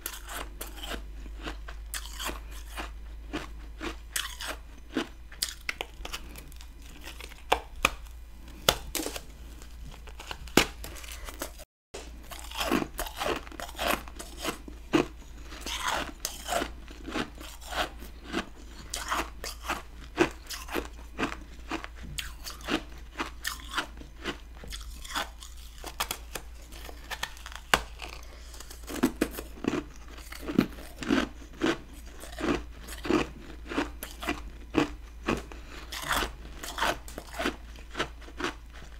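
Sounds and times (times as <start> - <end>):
crunching ice in mouth: 0.0 - 38.9.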